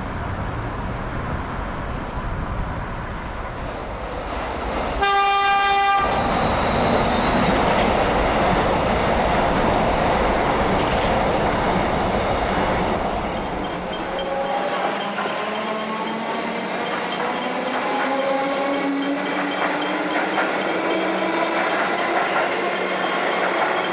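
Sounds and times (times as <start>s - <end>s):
train passing with wheel rush: 0.0s - 23.9s
train horn blast: 5.0s - 6.2s
faint whining squealing tones: 6.2s - 7.7s.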